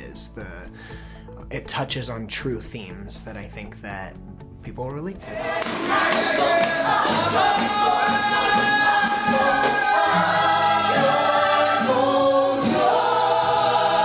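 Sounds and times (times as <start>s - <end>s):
ensemble singing: 5.2s - 14.0s
instrumental accompaniment: 5.2s - 14.0s.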